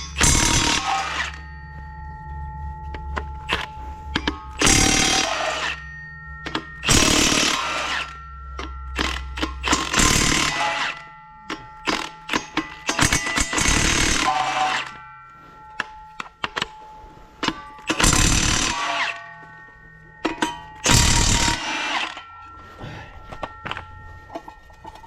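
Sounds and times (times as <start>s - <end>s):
impact wrench running: 0.0s - 1.4s, 3.5s - 5.8s, 9.0s - 11.0s, 11.8s - 14.9s, 17.8s - 19.2s, 20.8s - 22.2s.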